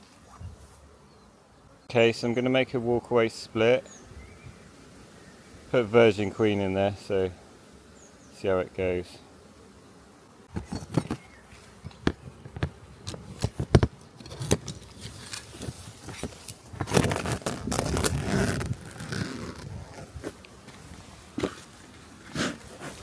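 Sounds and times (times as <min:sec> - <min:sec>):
scraping and rustling: 0:10.5 - 0:23.0.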